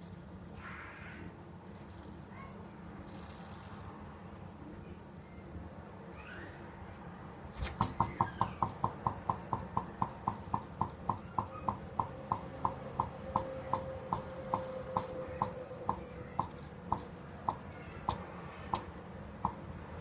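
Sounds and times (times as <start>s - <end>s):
stirling engine clicking: 7.8s - 19.7s.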